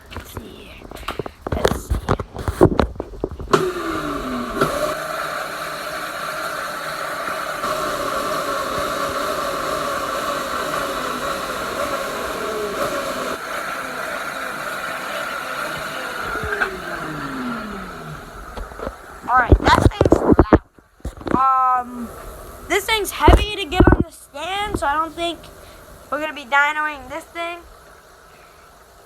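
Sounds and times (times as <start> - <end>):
dirt bike engine running: 7.3 - 21.9.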